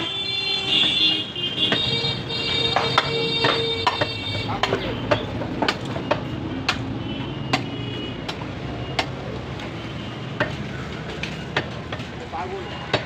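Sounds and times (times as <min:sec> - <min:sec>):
steady background noise: 0:00.0 - 0:13.0
cleaver chopping meat: 0:02.7 - 0:09.3.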